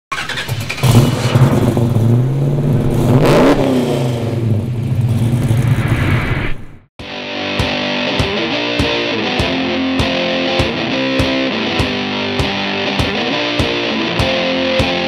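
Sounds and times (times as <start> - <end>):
car engine revving: 0.1 - 6.8.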